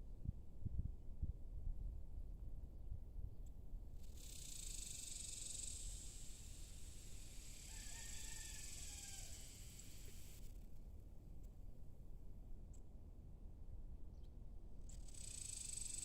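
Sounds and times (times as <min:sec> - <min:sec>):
steady high hiss: 0:04.0 - 0:10.7, 0:15.0 - 0:16.0
distant rooster crowing: 0:07.4 - 0:10.3.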